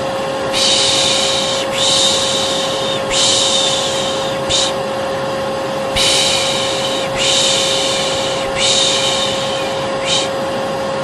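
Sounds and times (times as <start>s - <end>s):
hair dryer running: 0.0s - 11.0s
person shushing: 0.5s - 4.8s, 5.9s - 10.4s.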